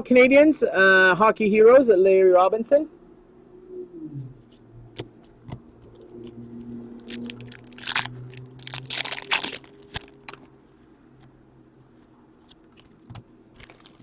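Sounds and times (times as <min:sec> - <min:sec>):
foil wrapper tearing and crinkling: 0:07.0 - 0:10.5, 0:13.6 - 0:14.0.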